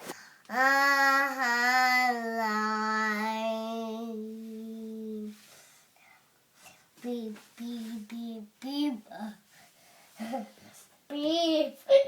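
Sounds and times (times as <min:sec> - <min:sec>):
child singing a long note: 0:00.5 - 0:05.1.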